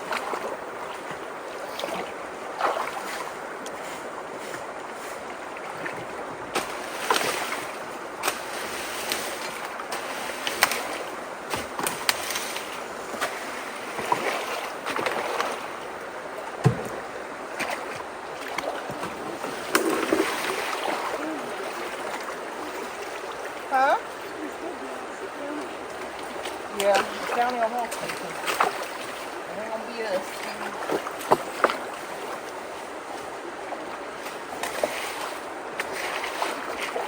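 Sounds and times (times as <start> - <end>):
flowing water rushing: 0.0 - 37.0
heavy low thump: 16.6 - 17.0.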